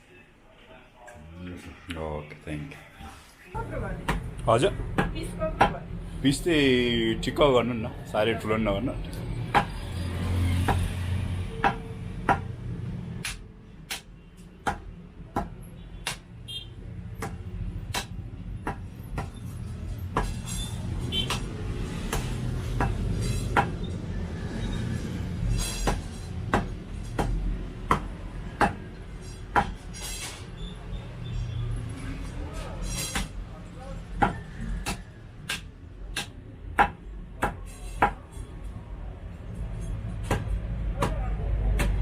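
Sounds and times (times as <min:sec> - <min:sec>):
cleaver chopping meat on board: 0:25.9 - 0:28.9, 0:34.2 - 0:38.2, 0:40.2 - 0:42.0.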